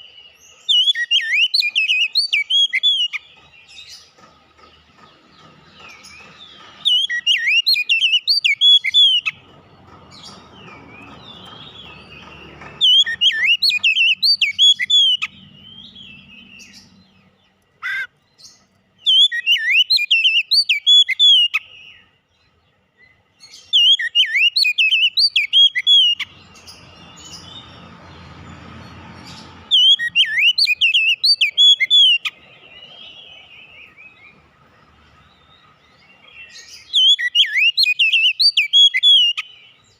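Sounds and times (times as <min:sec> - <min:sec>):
bird singing whistled phrases: 0:00.0 - 0:03.2, 0:06.9 - 0:09.4, 0:12.8 - 0:16.6, 0:19.0 - 0:22.0, 0:23.6 - 0:26.3, 0:29.7 - 0:32.3, 0:36.4 - 0:39.6.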